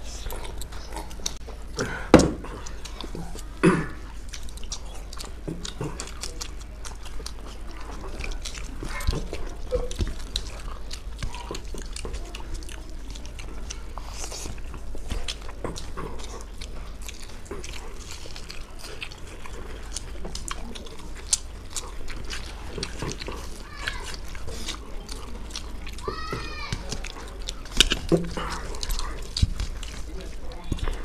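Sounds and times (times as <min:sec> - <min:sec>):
people chewing and biting: 0:00.0 - 0:31.0
wet mouth clicks: 0:26.8 - 0:31.0.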